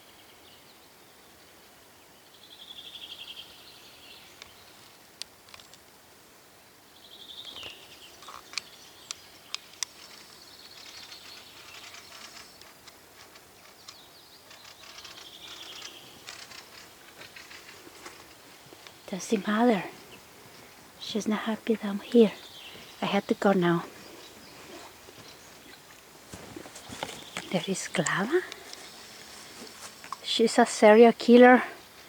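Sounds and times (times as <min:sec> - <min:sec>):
small birds trilling: 0:06.9 - 0:32.0
birds chattering: 0:07.1 - 0:32.0.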